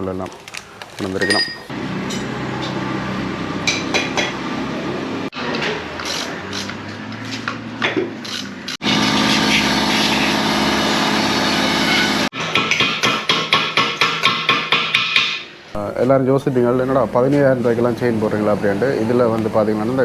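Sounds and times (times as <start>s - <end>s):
metal tool clinks: 1.2s - 1.7s
machine hum: 8.8s - 12.3s.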